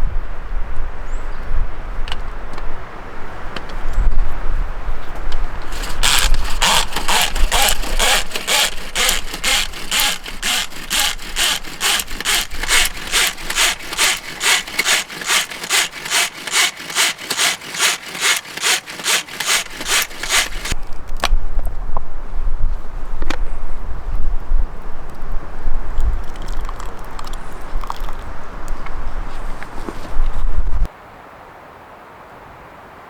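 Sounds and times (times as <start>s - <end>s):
hand saw cutting wood: 5.6s - 20.8s.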